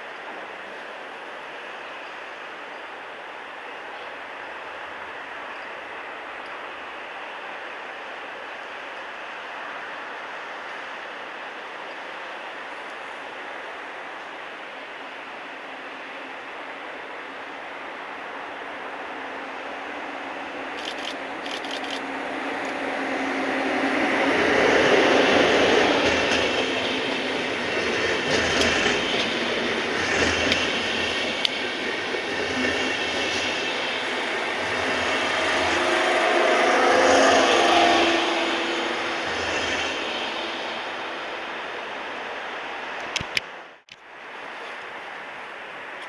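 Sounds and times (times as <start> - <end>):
train rolling past on rails: 0.0 - 46.0
sharp rail clicks: 20.7 - 22.8, 27.8 - 35.8, 42.9 - 44.0.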